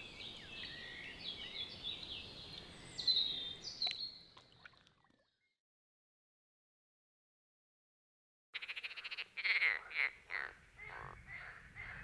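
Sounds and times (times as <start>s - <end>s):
songbirds chirping and trilling: 0.0s - 4.4s, 8.6s - 12.0s.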